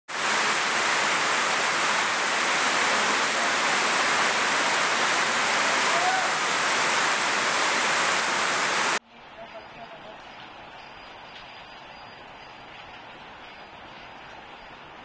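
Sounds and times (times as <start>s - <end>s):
heavy rain pouring: 0.1s - 9.0s.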